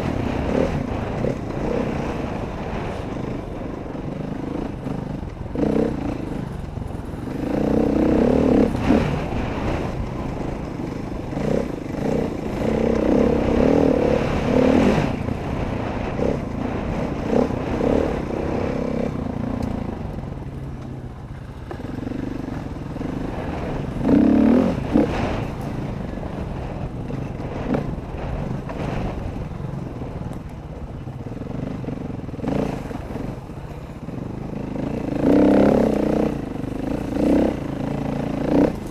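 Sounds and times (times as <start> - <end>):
dirt bike engine revving: 3.8 - 10.6, 11.2 - 20.3, 21.6 - 29.2, 31.6 - 38.9.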